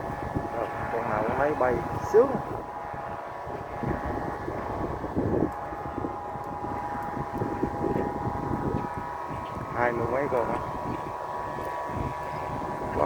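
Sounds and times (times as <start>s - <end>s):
kite flutes droning: 0.0s - 13.0s
wind rumble on microphone: 0.0s - 13.0s.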